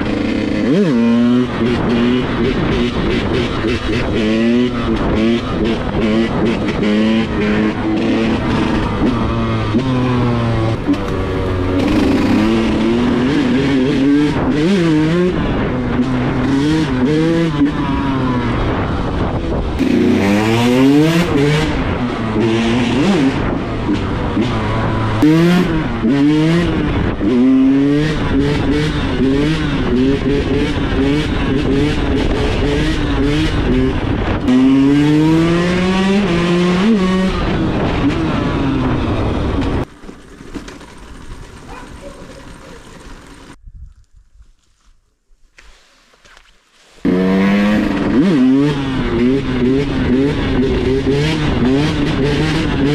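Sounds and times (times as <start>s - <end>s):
two-stroke engine revving: 0.0s - 18.8s, 19.5s - 43.6s, 47.0s - 52.9s.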